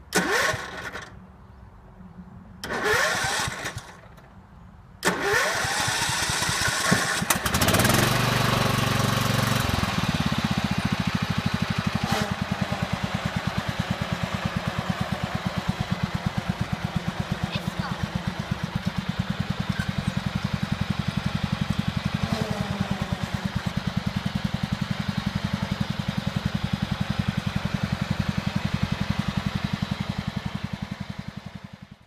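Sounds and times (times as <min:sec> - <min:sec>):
engine starter cranking: 0:00.1 - 0:01.2, 0:02.6 - 0:04.2, 0:05.0 - 0:10.1
tractor engine idling: 0:05.3 - 0:32.0.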